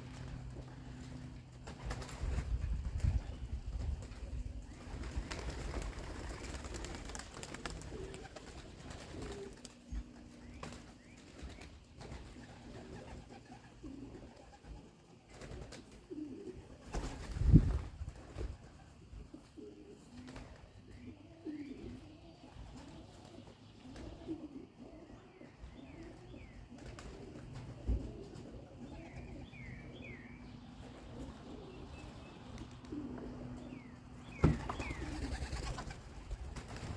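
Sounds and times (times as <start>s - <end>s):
pigeons cooing: 0.0s - 17.6s, 18.2s - 36.9s.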